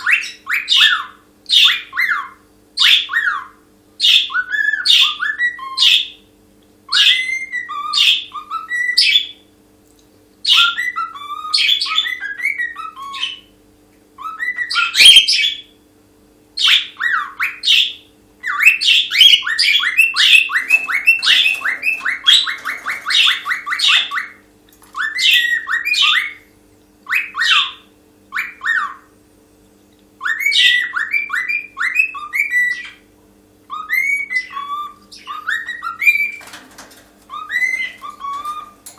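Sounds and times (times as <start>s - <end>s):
cockatiel whistling and chirping: 14.2s - 15.6s, 25.0s - 26.4s, 27.1s - 29.0s, 30.2s - 33.0s, 33.7s - 36.5s, 37.3s - 38.8s.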